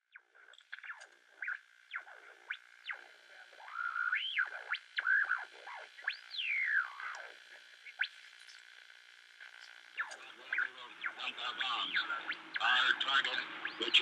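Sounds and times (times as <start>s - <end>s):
radio tuning whistles: 0.2s - 8.3s, 9.4s - 14.0s
steady high whine: 9.3s - 14.0s.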